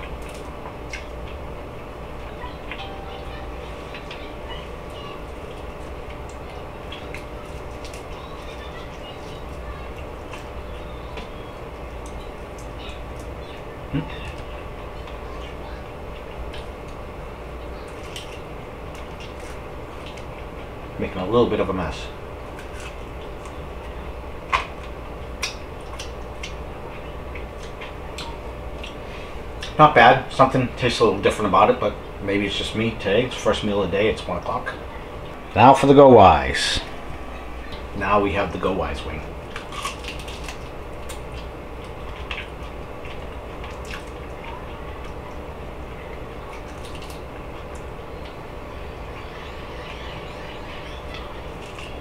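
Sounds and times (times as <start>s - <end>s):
chewing crunches and smacks: 0.0s - 1.7s, 4.9s - 20.9s, 22.4s - 29.0s, 29.6s - 29.8s, 39.1s - 48.5s, 50.8s - 52.0s
low hum: 0.0s - 21.4s
low background hum: 0.0s - 52.0s.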